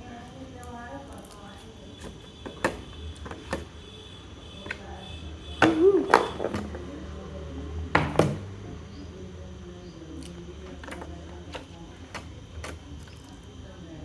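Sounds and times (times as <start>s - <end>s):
slime wet squelches: 10.1s - 13.6s.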